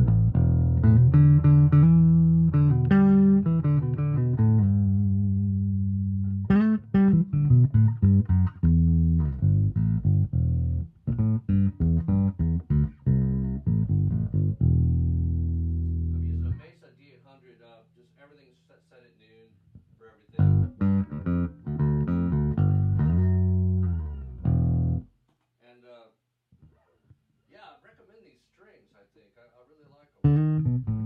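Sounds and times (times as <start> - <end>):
electric bass plucked notes: 0.0 - 16.6, 20.4 - 25.1, 30.2 - 31.0.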